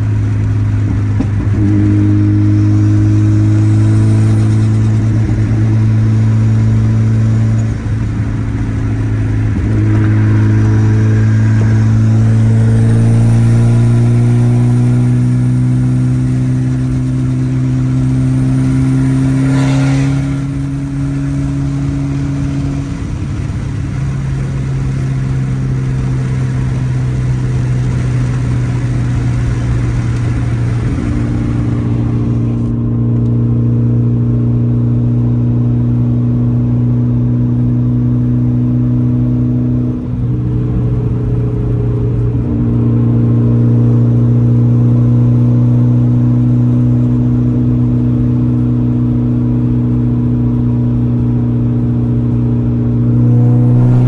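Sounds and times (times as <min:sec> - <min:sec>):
car engine droning: 0:00.0 - 0:54.0.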